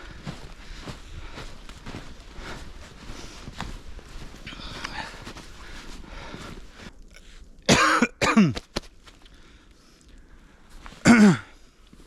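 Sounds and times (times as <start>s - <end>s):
footsteps crunching in snow: 0.0s - 7.6s, 8.5s - 9.6s
man coughing: 7.7s - 8.6s, 11.0s - 11.6s.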